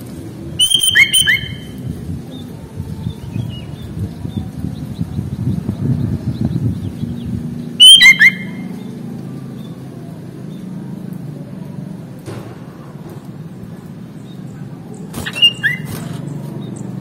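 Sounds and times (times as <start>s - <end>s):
low steady rumble: 0.0s - 17.0s
bird whistled call: 0.6s - 1.8s, 7.8s - 8.8s, 15.2s - 16.1s.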